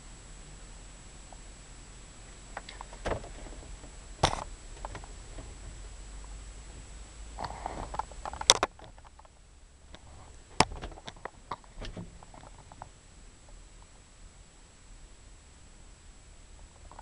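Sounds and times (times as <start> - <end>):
handling rustling and scraping: 9.9 - 12.9.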